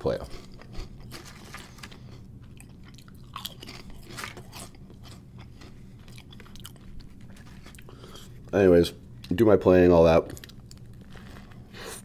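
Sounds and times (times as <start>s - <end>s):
potato chip crunching: 0.0s - 8.3s
soft chewing: 0.0s - 9.4s, 10.2s - 12.0s.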